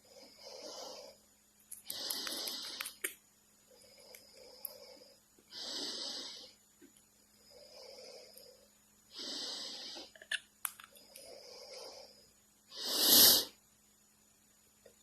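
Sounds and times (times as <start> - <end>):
noisy breaths or wheezes: 0.0 - 3.0, 3.6 - 6.7, 7.3 - 10.2, 11.0 - 13.7.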